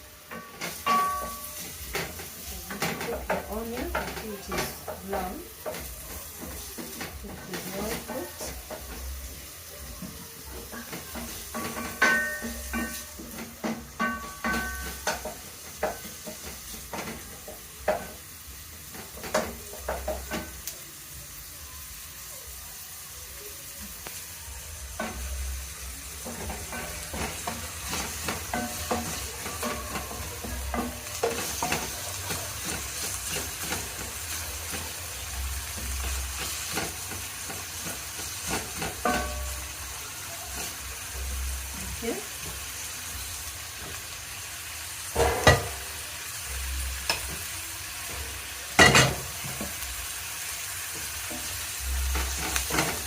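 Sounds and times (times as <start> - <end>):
onion sizzling in oil: 0.0 - 53.0
spoon knocking and scraping pot: 10.0 - 18.2, 26.2 - 34.9, 35.7 - 39.7, 45.2 - 45.8, 52.1 - 53.0.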